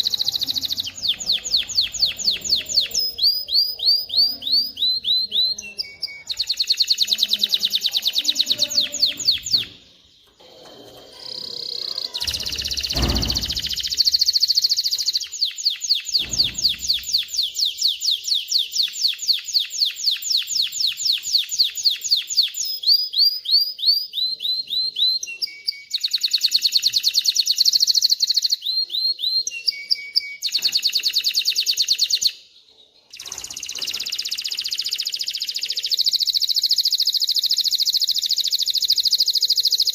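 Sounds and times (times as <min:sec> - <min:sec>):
canary singing trills: 0:00.0 - 0:39.9
low thump: 0:12.3 - 0:14.0.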